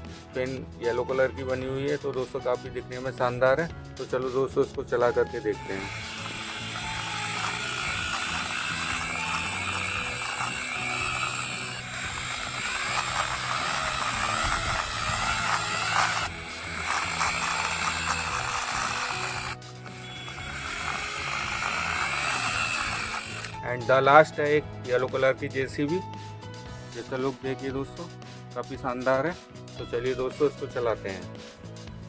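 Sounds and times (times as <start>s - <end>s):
background music: 0.0s - 32.0s
toy airplane motor whirring: 5.6s - 23.6s.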